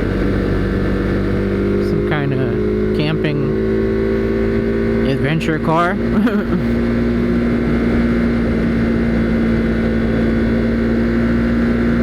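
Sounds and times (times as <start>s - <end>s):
motorcycle engine cruising: 0.0s - 12.0s
wind rumble: 6.6s - 12.0s.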